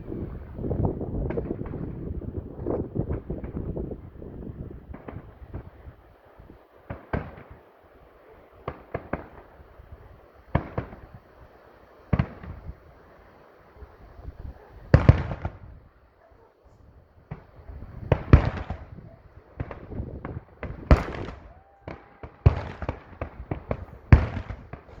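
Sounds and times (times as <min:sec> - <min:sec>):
fireworks bangs: 0:14.9 - 0:15.8, 0:17.2 - 0:25.0.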